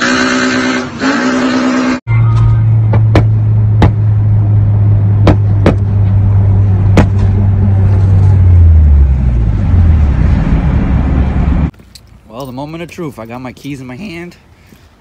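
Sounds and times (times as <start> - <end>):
car engine droning: 0.0 - 11.7
exhaust pops: 2.8 - 4.1, 5.2 - 6.2, 6.9 - 8.4.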